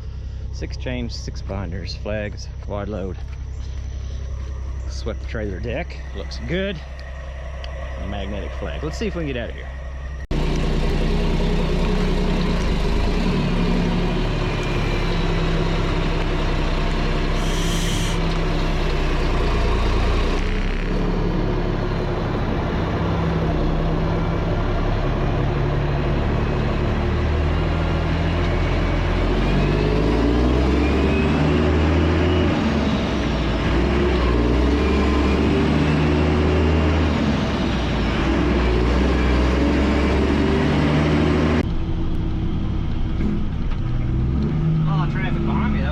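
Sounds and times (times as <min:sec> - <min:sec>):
truck diesel engine shifting gears: 0:00.0 - 0:45.9
short air hiss: 0:17.3 - 0:19.3.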